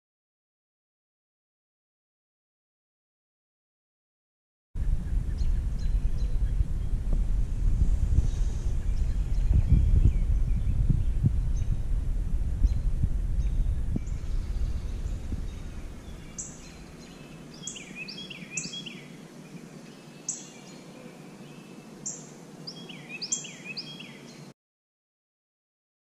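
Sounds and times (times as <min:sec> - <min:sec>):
songbird chirping: 0:04.8 - 0:11.9, 0:12.6 - 0:24.6
low rumble: 0:04.8 - 0:18.0.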